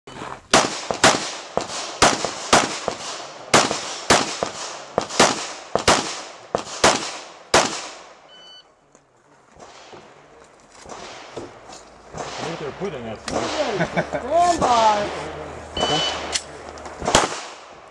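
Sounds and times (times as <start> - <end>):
faint gunshots: 0.5 - 8.1, 10.8 - 14.0, 17.0 - 17.8
pistol shots: 0.5 - 8.1, 12.1 - 12.7, 17.0 - 17.8.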